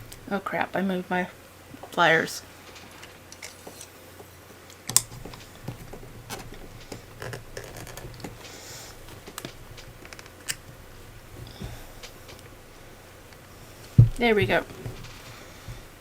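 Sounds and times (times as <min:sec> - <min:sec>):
doll parts clicking and scraping: 0:02.6 - 0:04.0, 0:04.7 - 0:16.0.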